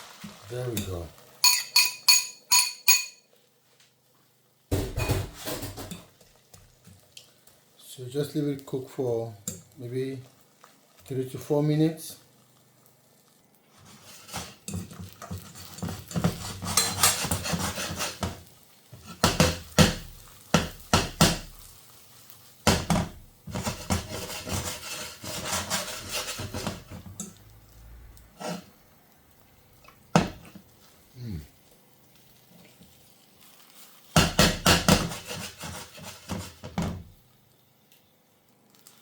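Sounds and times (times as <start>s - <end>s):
dishes and cutlery clattering: 1.4s - 3.3s, 4.8s - 6.1s.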